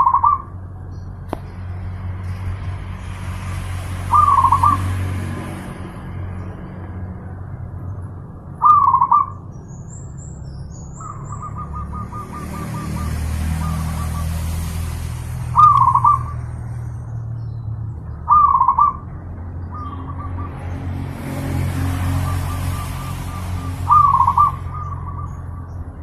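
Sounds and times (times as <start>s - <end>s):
dove cooing: 4.1s - 4.9s, 8.6s - 9.4s, 18.3s - 19.0s, 22.0s - 25.4s
faint high bird chirps: 8.6s - 14.3s.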